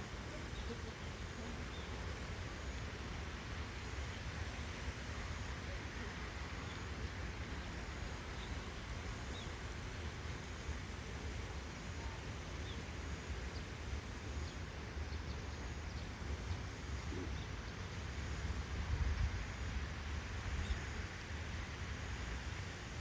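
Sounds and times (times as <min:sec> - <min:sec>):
faint bird chirps: 0:13.5 - 0:18.0
wind rumbling on microphone: 0:14.0 - 0:23.0.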